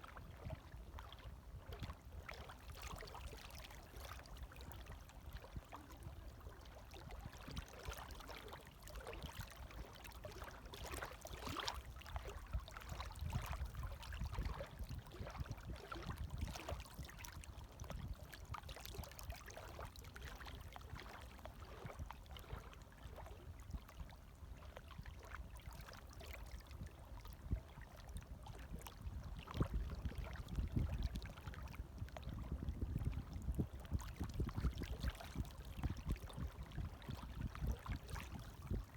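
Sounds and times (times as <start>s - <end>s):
waves lapping at shore: 1.8s - 16.0s.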